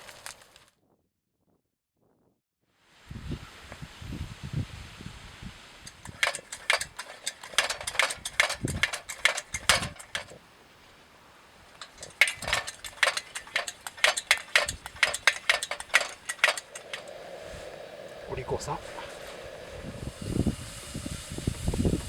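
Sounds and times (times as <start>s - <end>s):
small hard objects clattering: 0.0s - 0.7s, 5.9s - 10.4s, 11.8s - 17.2s.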